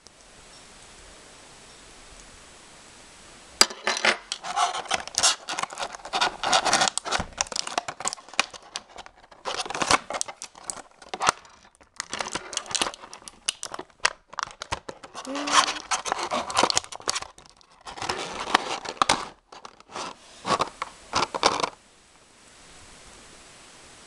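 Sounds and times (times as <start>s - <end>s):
packaging ripping and crackling: 3.6s - 21.8s.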